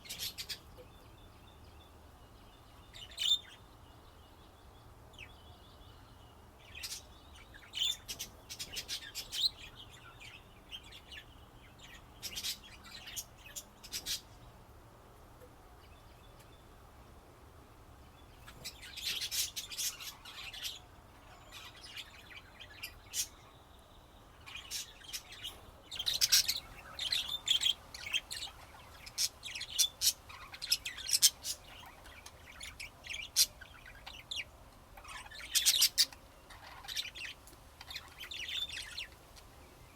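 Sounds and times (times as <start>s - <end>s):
budgerigars chirping and chattering: 0.0s - 0.8s, 2.9s - 3.6s, 6.7s - 14.4s, 18.4s - 23.5s, 24.4s - 39.5s.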